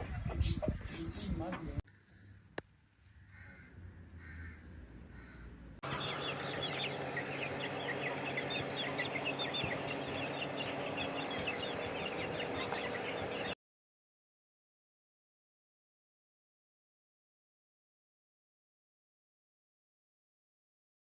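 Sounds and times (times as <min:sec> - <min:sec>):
chickens clucking: 0:00.0 - 0:01.8, 0:05.8 - 0:13.6.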